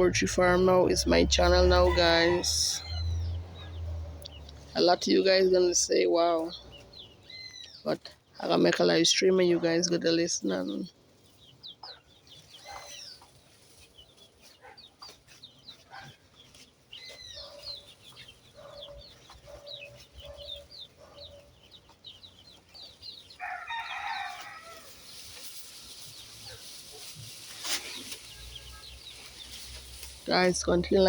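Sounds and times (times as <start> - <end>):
chickens clucking: 0.0 - 31.0
chicks peeping and chirping: 0.0 - 31.0.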